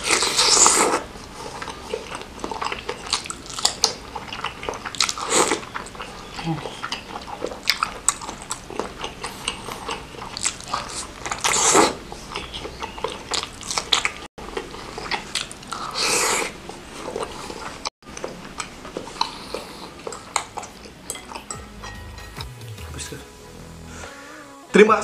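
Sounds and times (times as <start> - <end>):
loud slurps: 0.0 - 6.2, 8.2 - 17.9
chewing with wet mouth clicks: 0.0 - 22.0.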